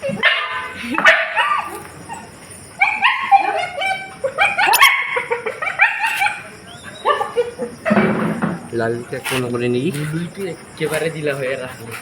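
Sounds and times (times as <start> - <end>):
puppies whimpering and yipping: 1.4 - 7.5.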